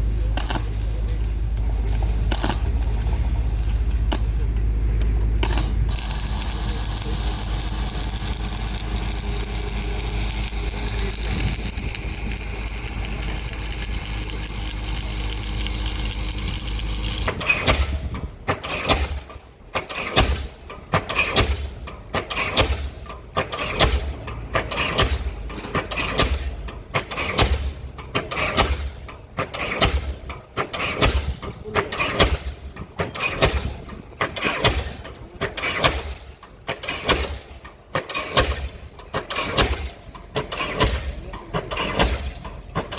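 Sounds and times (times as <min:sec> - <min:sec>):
low engine rumble: 0:00.0 - 0:19.8
pile hammer blows: 0:00.0 - 0:42.9.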